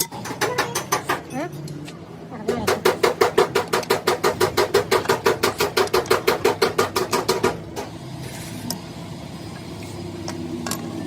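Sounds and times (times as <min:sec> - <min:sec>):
hammer strikes on metal: 0:00.0 - 0:01.3, 0:02.5 - 0:07.9.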